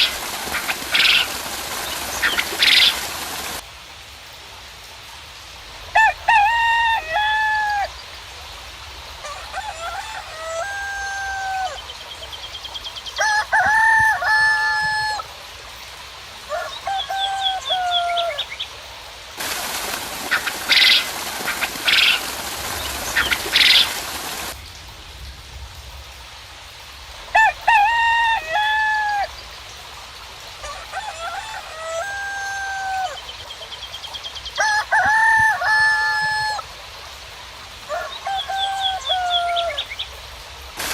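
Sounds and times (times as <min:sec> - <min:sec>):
roosters crowing: 0:05.9 - 0:07.9, 0:09.2 - 0:11.9, 0:13.2 - 0:15.3, 0:16.5 - 0:18.5, 0:19.4 - 0:24.6, 0:27.4 - 0:29.3, 0:30.6 - 0:33.3, 0:34.6 - 0:36.7, 0:37.9 - 0:40.0
small birds chirping faintly: 0:11.6 - 0:27.4
hissing noise: 0:19.4 - 0:24.6.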